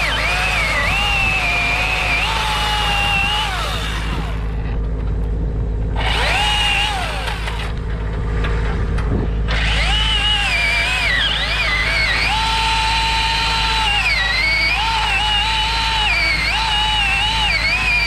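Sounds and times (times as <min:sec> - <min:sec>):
chainsaw revving: 0:00.0 - 0:04.8, 0:05.9 - 0:07.8, 0:09.5 - 0:18.0.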